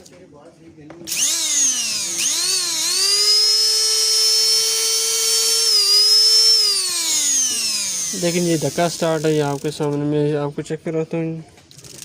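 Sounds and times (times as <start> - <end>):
small motor whining: 1.1 - 9.6.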